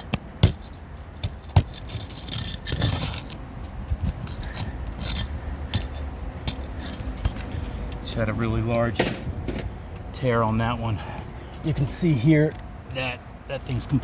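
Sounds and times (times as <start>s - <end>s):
shingle tearing: 0.0s - 7.4s
metal tool scraping shingles: 0.5s - 3.4s, 4.0s - 7.4s.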